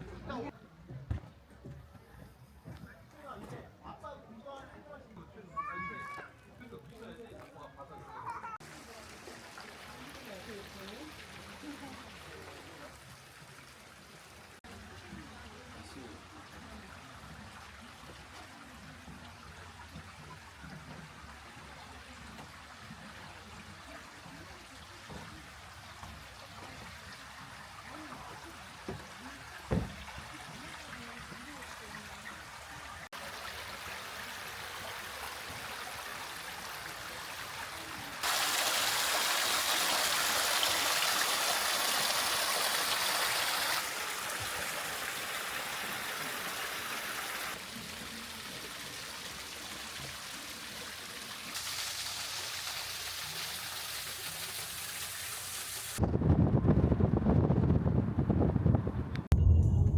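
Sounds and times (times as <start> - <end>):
water rushing: 8.5 - 56.0
single knock: 29.7 - 30.0.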